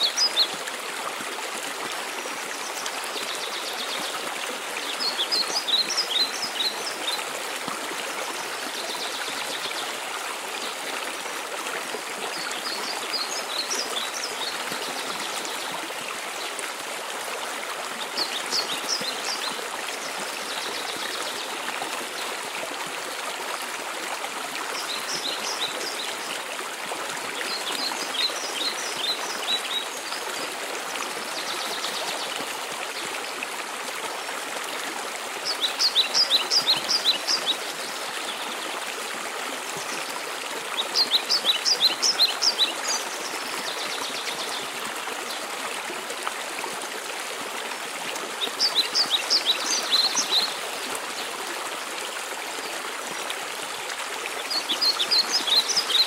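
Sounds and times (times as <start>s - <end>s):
songbird singing: 35.4s - 38.6s.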